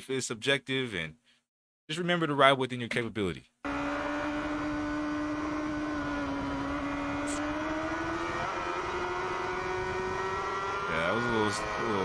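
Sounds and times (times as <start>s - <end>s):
motorcycle engine at high revs: 3.7s - 12.0s.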